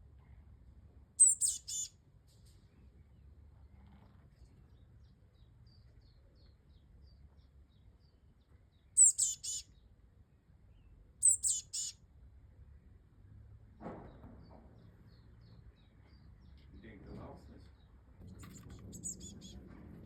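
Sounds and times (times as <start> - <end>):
bird calling with chirpy notes: 1.2 - 1.9, 9.0 - 9.8, 11.2 - 12.0, 18.4 - 19.6.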